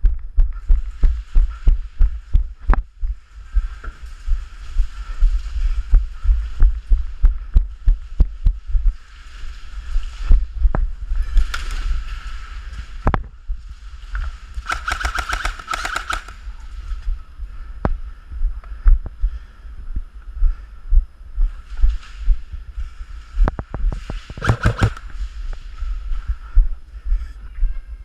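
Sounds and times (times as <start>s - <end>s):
airsoft gun firing: 14.6s - 16.4s, 24.4s - 25.0s.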